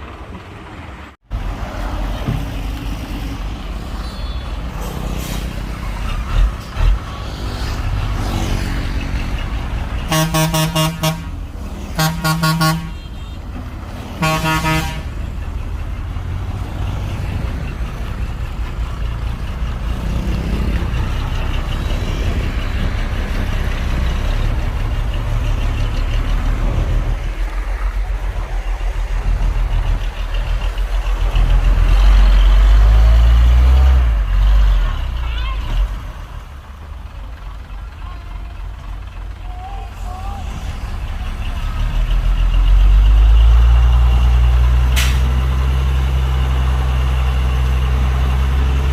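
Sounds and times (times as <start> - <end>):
heavy diesel engine rumbling: 0.0 - 48.9
truck horn blasts: 10.0 - 15.3.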